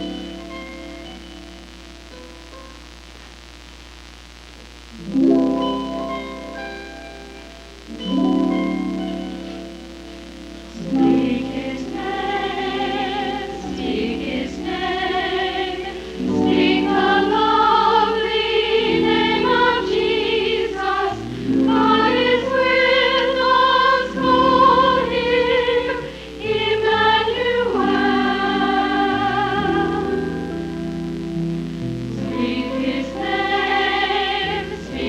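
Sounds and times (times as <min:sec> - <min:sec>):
held accompaniment chords: 0:04.9 - 0:35.0
choir singing with vibrato: 0:10.7 - 0:31.2, 0:32.2 - 0:35.0.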